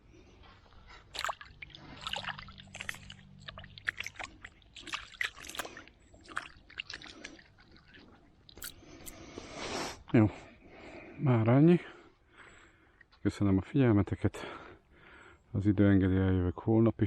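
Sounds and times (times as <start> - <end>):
river water splashing: 1.1 - 9.2.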